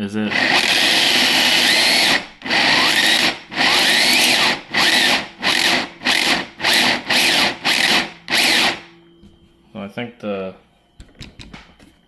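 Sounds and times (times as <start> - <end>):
electric motor whirring: 0.3 - 8.9.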